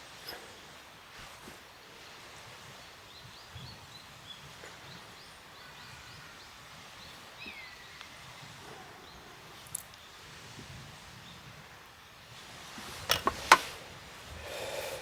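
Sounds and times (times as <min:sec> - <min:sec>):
steady outdoor hiss: 0:00.0 - 0:15.0
small birds chirping: 0:02.0 - 0:10.2.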